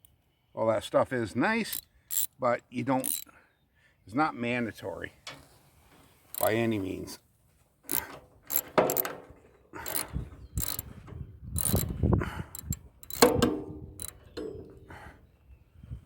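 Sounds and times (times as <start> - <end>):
wrench on steel parts clicking: 1.7 - 2.4, 3.0 - 3.3, 6.3 - 6.5, 7.9 - 9.1, 9.8 - 10.9, 11.6 - 11.9, 12.5 - 14.2.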